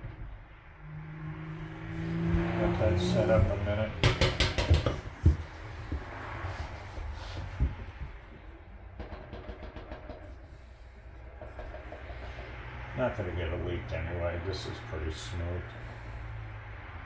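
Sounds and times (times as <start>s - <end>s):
parts knocking and clicking: 2.1s - 13.0s.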